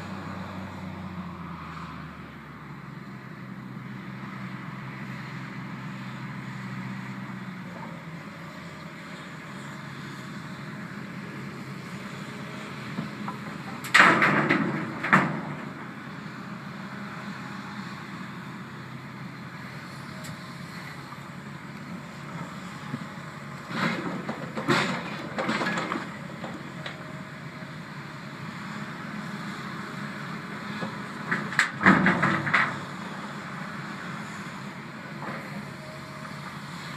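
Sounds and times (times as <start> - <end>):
heavy machinery running: 10.3 - 36.9
rock clattering into steel truck bed: 13.8 - 15.8, 31.6 - 32.8.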